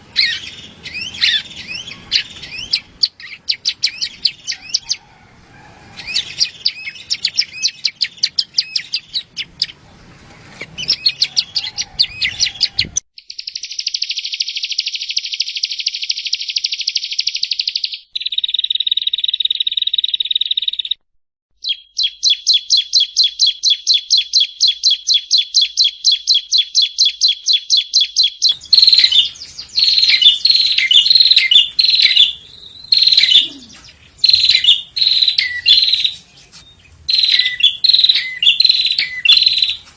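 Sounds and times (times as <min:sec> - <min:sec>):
bird song chirps and trills: 0:00.0 - 0:05.0, 0:06.0 - 0:21.0, 0:21.6 - 0:39.9
bird chattering: 0:00.2 - 0:05.0, 0:21.6 - 0:39.9.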